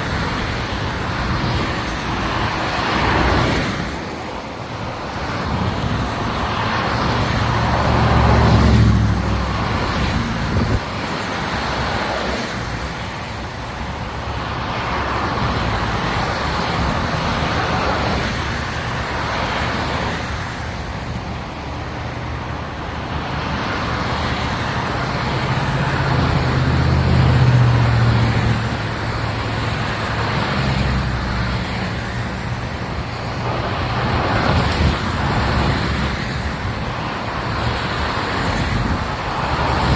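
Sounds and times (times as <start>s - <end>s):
highway traffic noise: 0.0s - 39.9s
vehicles passing with engine rumble: 0.0s - 39.9s.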